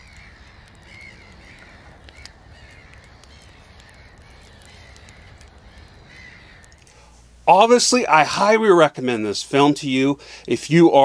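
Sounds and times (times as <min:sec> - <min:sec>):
bird calls: 0:00.0 - 0:07.0
sharp crackles: 0:00.0 - 0:11.0
steady hiss: 0:00.0 - 0:11.0.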